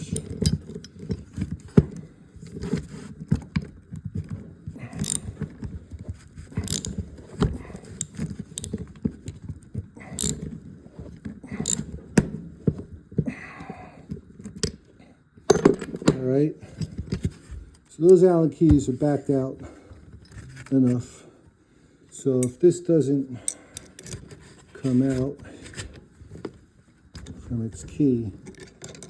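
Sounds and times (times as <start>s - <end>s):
allen key clicking on metal screws: 0.0s - 5.7s, 6.5s - 10.6s, 11.5s - 12.3s.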